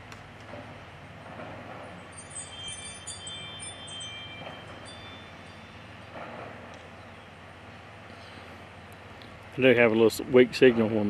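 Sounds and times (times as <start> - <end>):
high bell-like chime tones: 2.0 - 6.1.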